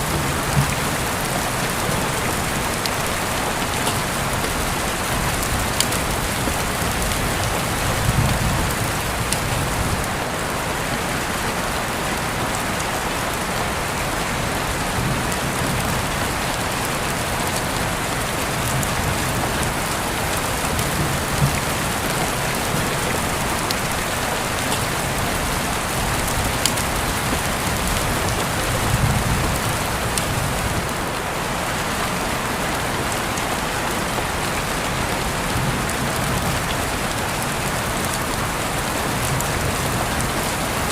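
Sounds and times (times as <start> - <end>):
raindrops ticking: 0.0 - 10.2, 14.0 - 31.0
steady rain falling: 0.0 - 40.9.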